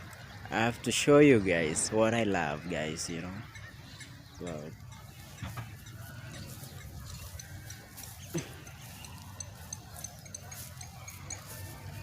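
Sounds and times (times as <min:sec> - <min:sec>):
raindrops ticking: 0:03.4 - 0:12.0.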